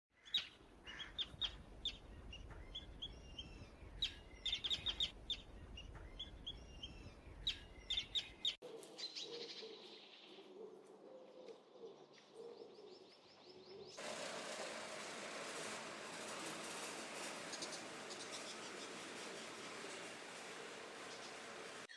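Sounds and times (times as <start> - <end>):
small birds chirping: 0.2 - 8.6, 17.2 - 21.9.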